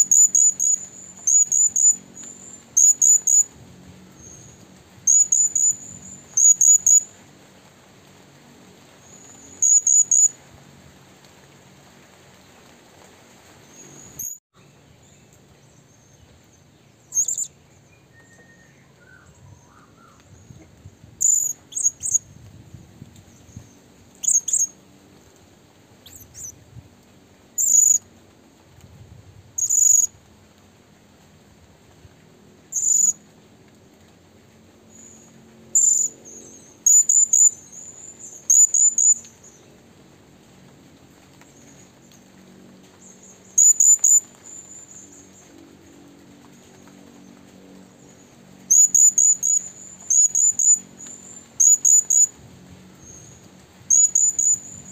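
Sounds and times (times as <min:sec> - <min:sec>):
bird high chirps: 0:00.0 - 0:03.5, 0:05.1 - 0:07.1, 0:09.1 - 0:10.3, 0:17.1 - 0:17.5, 0:21.2 - 0:22.2, 0:23.6 - 0:24.7, 0:26.0 - 0:26.5, 0:27.6 - 0:28.0, 0:29.6 - 0:30.1, 0:32.8 - 0:33.2, 0:35.8 - 0:39.3, 0:43.2 - 0:45.2, 0:48.7 - 0:52.3, 0:53.9 - 0:54.9.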